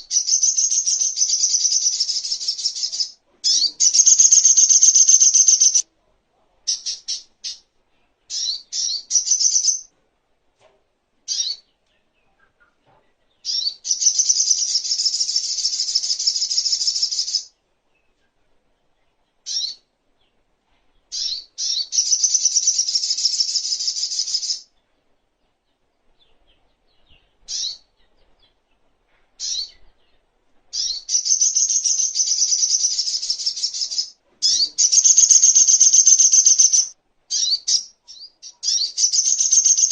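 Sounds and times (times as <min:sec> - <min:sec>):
bird chirping trills: 0:00.0 - 0:05.8, 0:08.3 - 0:09.9, 0:21.0 - 0:39.9.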